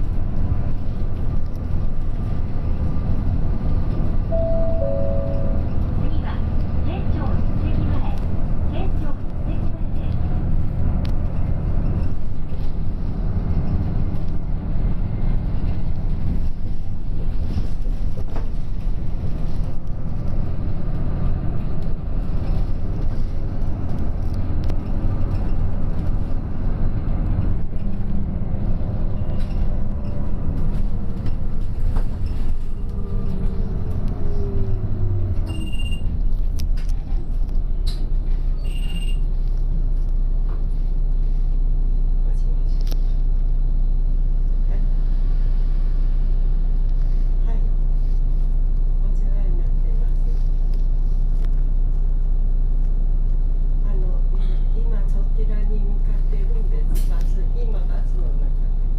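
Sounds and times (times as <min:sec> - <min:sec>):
bus engine and road noise: 0:00.0 - 0:58.9
short high beeps: 0:04.4 - 0:05.8.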